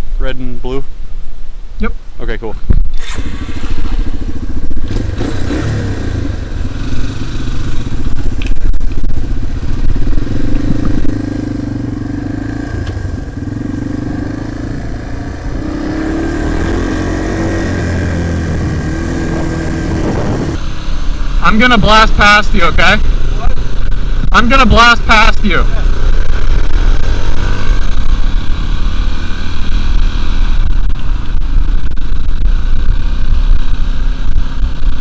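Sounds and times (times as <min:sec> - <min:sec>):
dirt bike engine revving: 0:02.9 - 0:20.6, 0:25.8 - 0:30.7.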